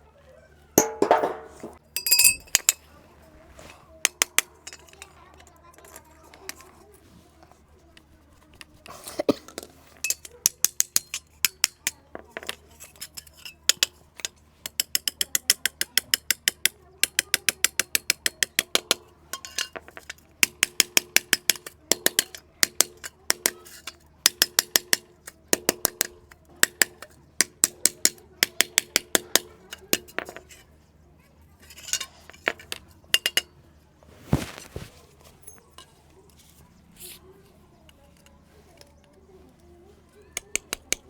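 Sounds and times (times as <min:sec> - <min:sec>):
hammer striking metal dish: 0:00.8 - 0:02.5.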